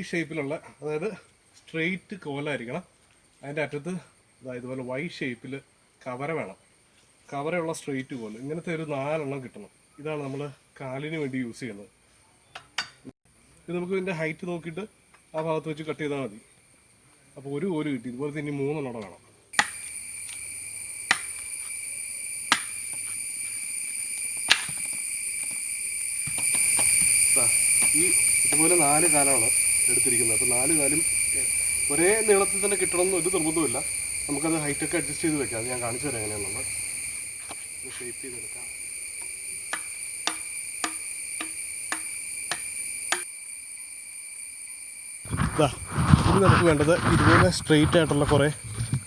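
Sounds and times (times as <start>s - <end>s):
crickets chirping: 0.0s - 49.0s
blade chopping wood: 19.6s - 20.4s, 21.1s - 21.5s, 22.5s - 23.2s, 24.4s - 25.6s, 26.3s - 28.7s, 39.7s - 43.2s.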